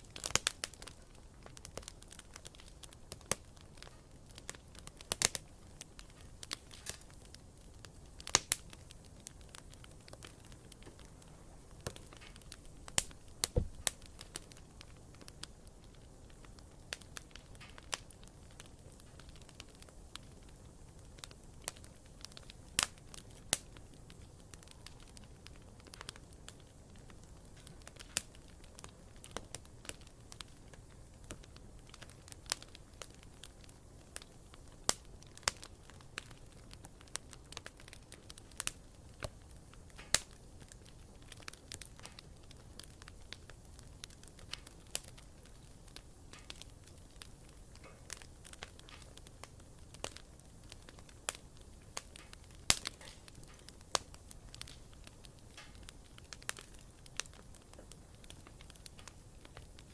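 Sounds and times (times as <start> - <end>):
wood fire crackling: 0.0 - 59.9
low rush of burning: 0.1 - 30.4.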